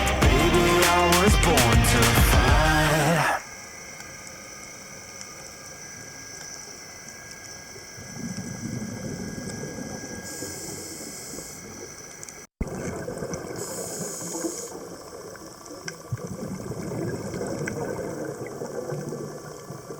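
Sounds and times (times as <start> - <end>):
steady underwater hiss: 2.8 - 19.9
exhaled air bubbling: 12.6 - 19.9.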